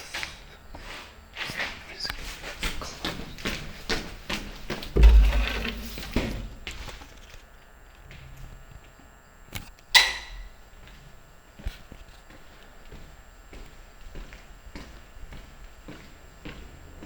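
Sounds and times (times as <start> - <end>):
knocks and thuds: 5.0 - 7.1.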